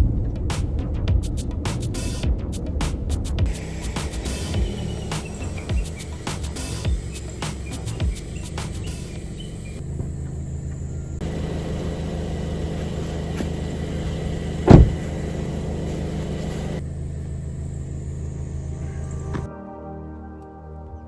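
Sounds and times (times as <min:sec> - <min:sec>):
car engine rumbling: 0:00.0 - 0:19.5
loud thump: 0:14.6 - 0:15.2.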